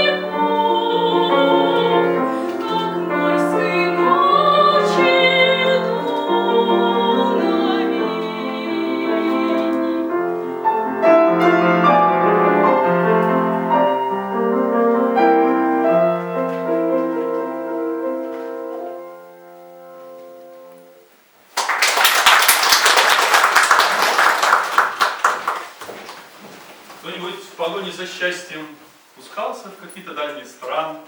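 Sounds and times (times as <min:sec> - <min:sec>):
piano playing: 0:00.0 - 0:21.3
audience applause: 0:21.5 - 0:26.3.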